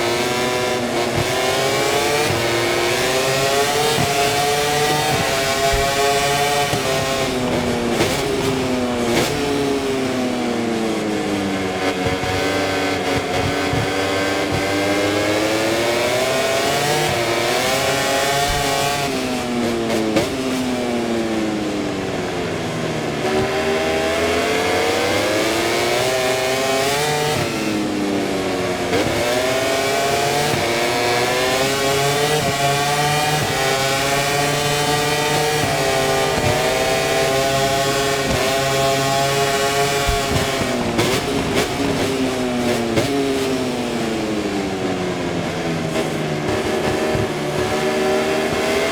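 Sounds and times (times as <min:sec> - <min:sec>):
motorcycle engine revving through gears: 0:00.0 - 0:48.9.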